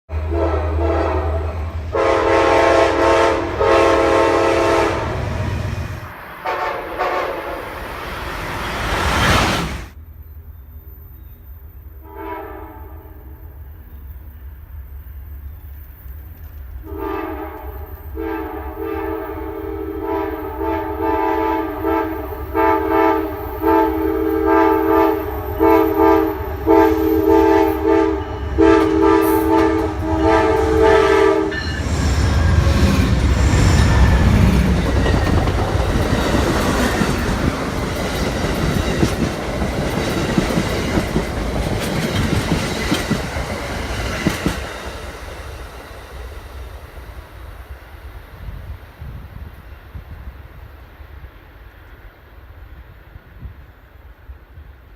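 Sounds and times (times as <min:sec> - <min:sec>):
train air horn blasts: 0:00.1 - 0:07.9, 0:12.0 - 0:13.4, 0:16.8 - 0:34.7
train rumbling past: 0:00.1 - 0:54.9.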